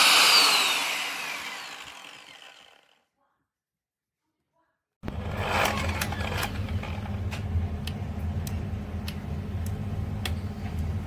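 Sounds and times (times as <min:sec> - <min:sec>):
electric sander running: 0:00.0 - 0:03.0, 0:05.0 - 0:07.2.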